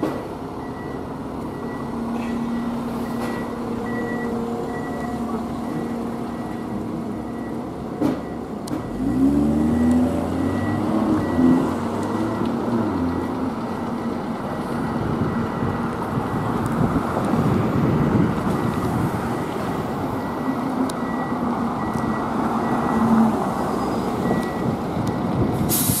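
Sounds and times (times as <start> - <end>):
diesel engine running: 0.0 - 26.0
backup alarm beeping: 0.6 - 14.4, 20.2 - 25.2.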